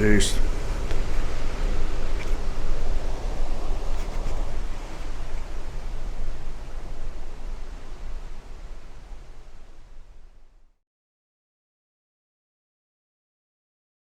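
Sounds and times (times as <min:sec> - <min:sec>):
wind rumbling on microphone: 0:00.0 - 0:10.7
wind and sea rushing: 0:00.0 - 0:10.8.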